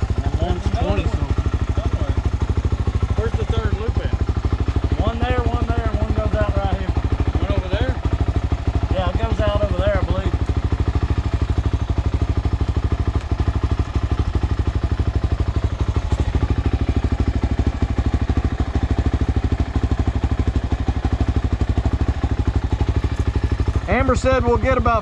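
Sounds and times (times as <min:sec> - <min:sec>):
dirt bike engine idling: 0:00.0 - 0:25.0.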